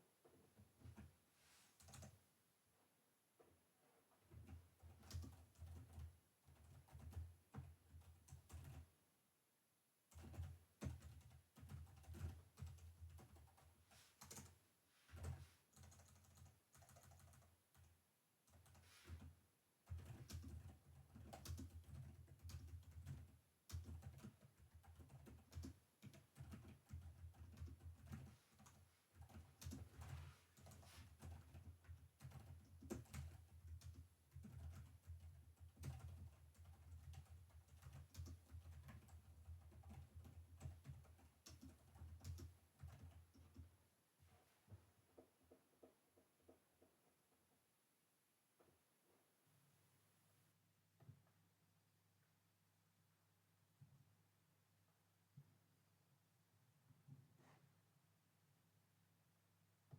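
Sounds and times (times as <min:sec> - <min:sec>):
typing on a computer keyboard: 0:01.8 - 0:02.2, 0:04.2 - 0:08.9, 0:10.1 - 0:43.8.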